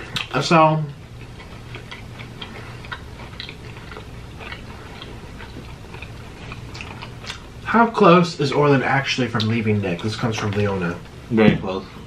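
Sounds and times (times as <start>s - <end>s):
low steady hum: 0.0s - 12.0s
person crunching fried food: 1.1s - 7.6s.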